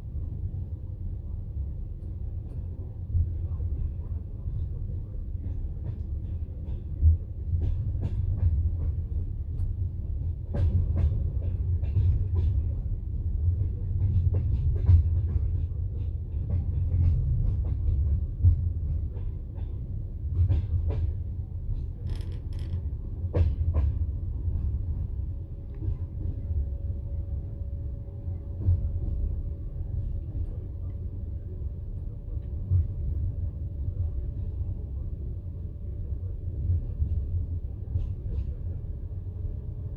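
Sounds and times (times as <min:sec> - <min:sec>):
train wheels rumbling on rail: 0:00.0 - 0:39.9
clacks and knocks: 0:22.0 - 0:24.0.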